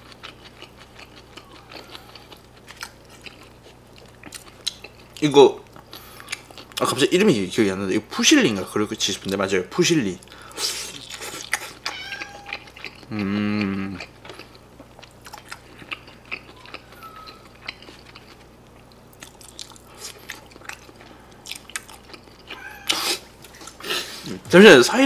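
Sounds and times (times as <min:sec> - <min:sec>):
chewing with wet mouth clicks: 0:00.0 - 0:06.9, 0:10.9 - 0:23.8
person humming mmm: 0:13.0 - 0:14.1.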